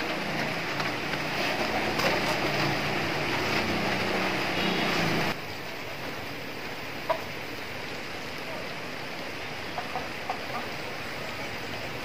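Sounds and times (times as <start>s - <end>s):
rain on leaves and wet ground: 0.0s - 12.0s
chickens clucking: 9.7s - 10.8s.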